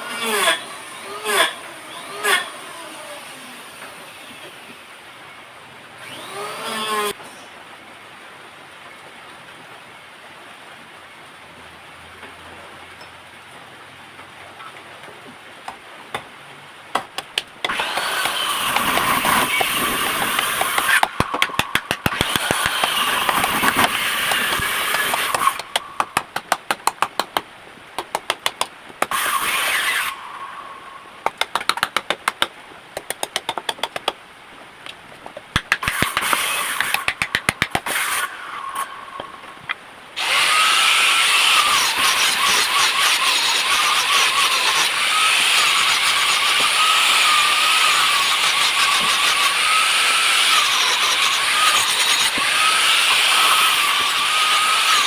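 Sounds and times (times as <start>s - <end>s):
power tool whining: 0.0s - 4.8s, 6.0s - 7.2s, 17.6s - 25.8s, 29.1s - 30.7s, 35.8s - 39.2s, 40.2s - 55.0s
rapid clicking and knocking: 16.9s - 29.1s, 31.2s - 34.2s, 35.2s - 37.9s.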